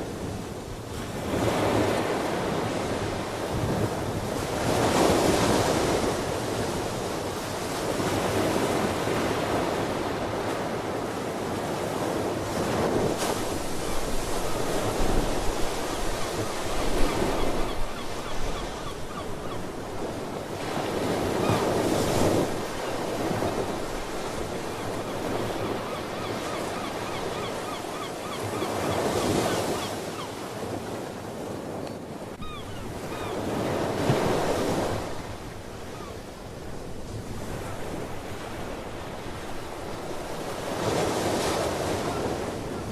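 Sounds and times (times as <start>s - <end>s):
ocean waves breaking on shore: 0.0s - 42.9s
faint sea bird calls: 15.9s - 19.8s, 24.8s - 30.5s, 32.4s - 33.9s, 35.9s - 36.2s.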